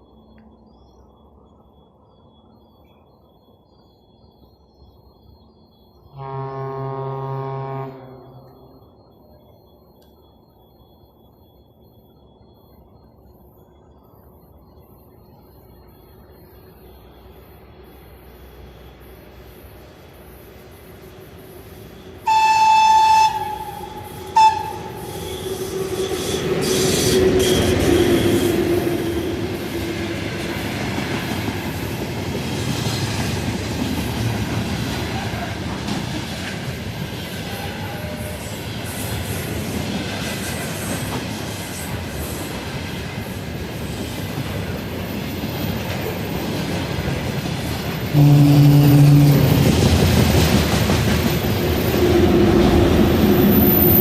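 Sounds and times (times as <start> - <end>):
locomotive horn blasts: 6.1 - 8.8, 22.2 - 29.3, 37.5 - 38.5, 48.1 - 49.6
train wheels rumbling on rails: 15.4 - 54.0.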